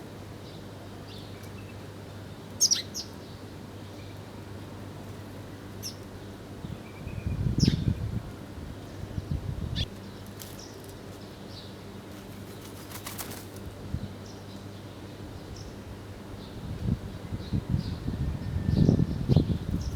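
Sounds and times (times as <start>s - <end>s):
birds flapping wings: 12.1s - 13.8s.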